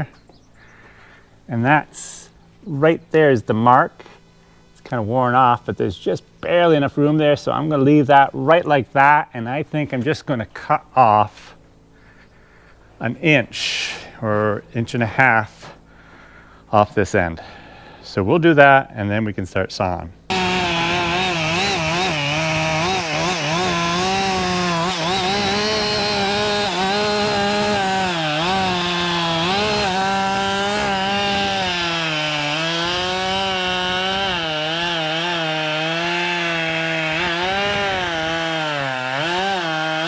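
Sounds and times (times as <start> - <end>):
chainsaw cutting wood: 20.3 - 40.0.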